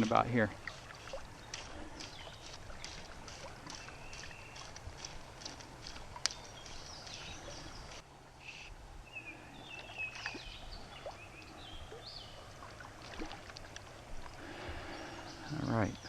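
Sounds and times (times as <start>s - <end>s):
wild birds chirping: 0.0s - 16.0s.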